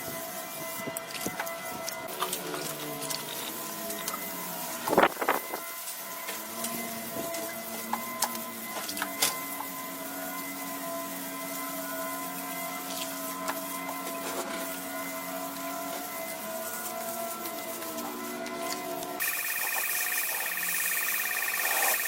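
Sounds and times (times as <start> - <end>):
machine running steadily: 19.2 - 22.0.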